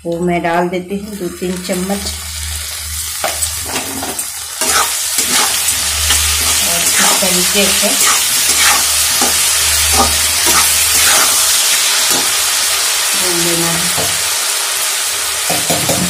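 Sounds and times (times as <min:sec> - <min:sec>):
vegetables sizzling in oil: 0:00.1 - 0:16.0
spatula scraping a pan: 0:03.4 - 0:12.4.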